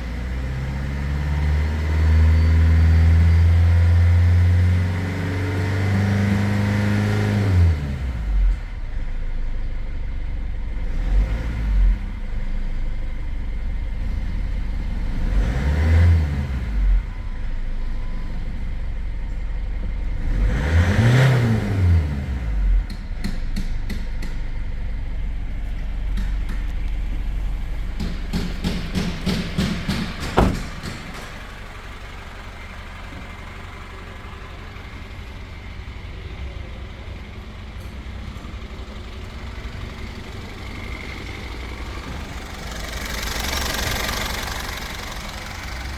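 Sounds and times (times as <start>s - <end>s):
diesel engine idling and revving: 0.0s - 45.9s
sharp knock: 28.0s - 31.4s.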